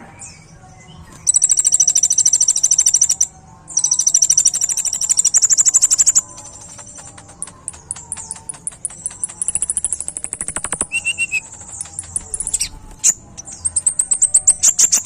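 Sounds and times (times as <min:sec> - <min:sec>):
soft bird chirps: 0:00.0 - 0:15.0
sunbird high-pitched trills: 0:01.1 - 0:15.0.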